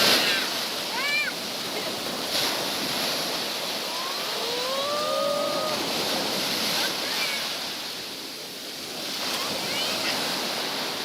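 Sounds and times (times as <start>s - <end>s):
sea surf washing: 0.0s - 11.0s
long rising voice call: 3.8s - 6.1s.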